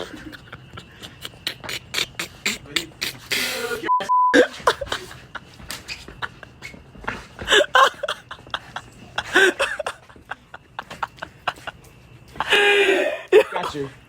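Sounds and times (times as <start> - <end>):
mouth noises: 0.8 - 4.6
group of voices: 1.0 - 4.6
high censor bleep: 3.9 - 4.4.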